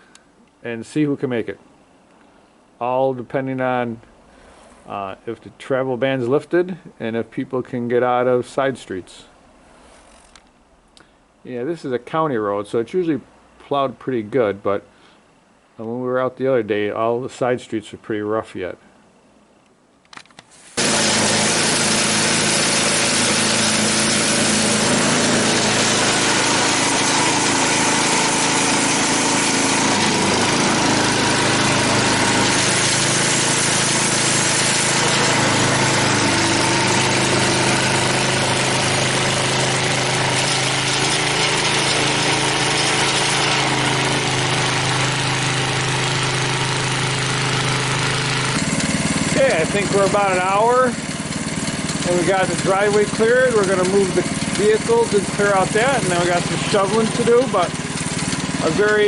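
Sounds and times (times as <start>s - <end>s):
snowblower engine running: 20.8s - 59.0s.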